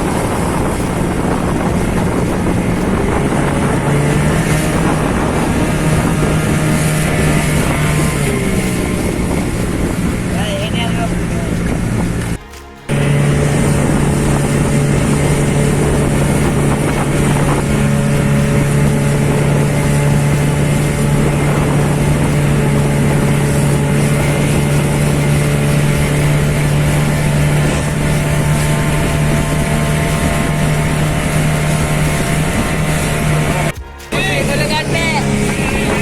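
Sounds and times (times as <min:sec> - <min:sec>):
motorboat engine running: 0:00.0 - 0:36.0.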